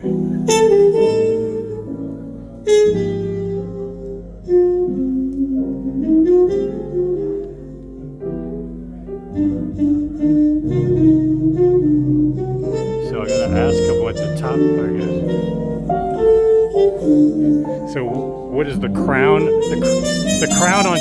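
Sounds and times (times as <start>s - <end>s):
music from vinyl record: 13.0s - 21.0s.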